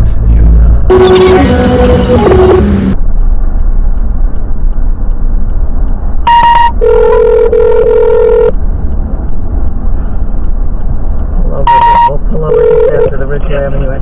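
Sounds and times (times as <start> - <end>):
road rumble inside vehicle: 0.0 - 14.0
short beep: 0.9 - 3.0, 6.3 - 8.5, 11.6 - 12.7
telephone ringing tone: 6.3 - 8.5, 11.7 - 13.1.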